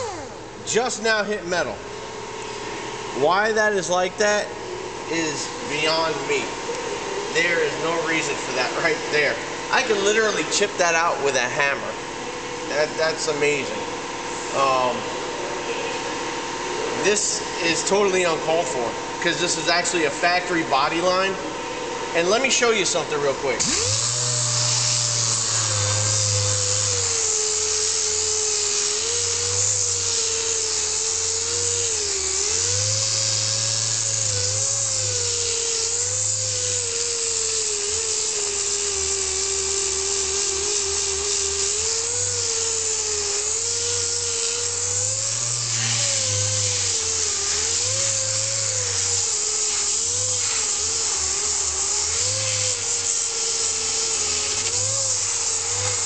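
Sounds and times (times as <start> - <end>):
grinder whining under load: 0.0 - 1.0, 15.9 - 56.0.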